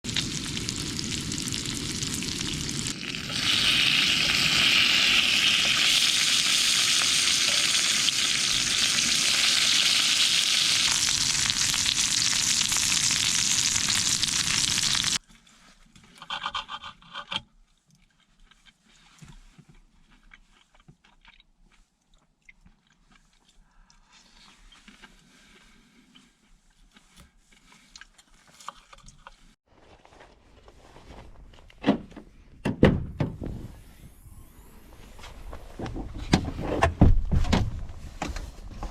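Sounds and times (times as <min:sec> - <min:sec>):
meat sizzling in a hot pan: 0:00.1 - 0:15.2.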